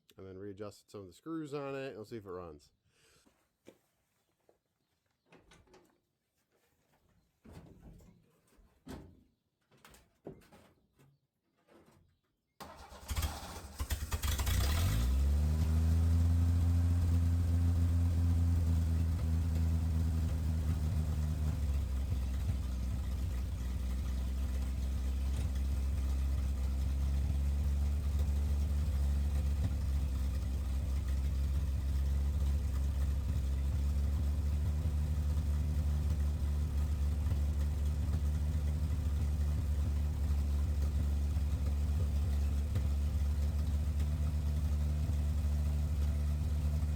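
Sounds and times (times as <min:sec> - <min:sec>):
starter cranking engine: 0:12.6 - 0:15.4
car engine idling: 0:12.6 - 0:46.9.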